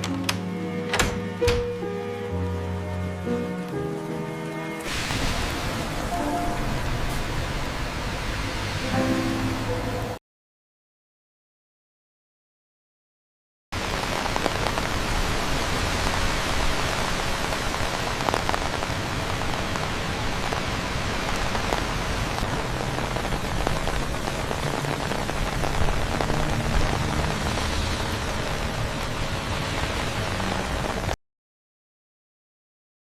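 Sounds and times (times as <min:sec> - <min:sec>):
steady rain falling: 0:02.2 - 0:10.2, 0:13.8 - 0:31.2.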